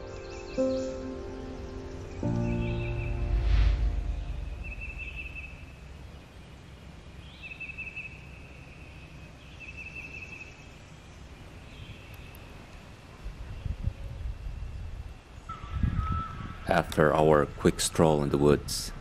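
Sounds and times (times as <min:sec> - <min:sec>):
low steady rumble: 0:02.6 - 0:07.4.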